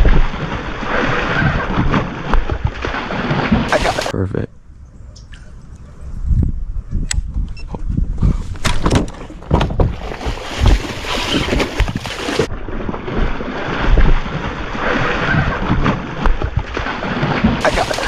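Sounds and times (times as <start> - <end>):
water splashing: 0.0 - 4.1, 9.8 - 18.0
wind buffeting microphone: 5.5 - 10.9.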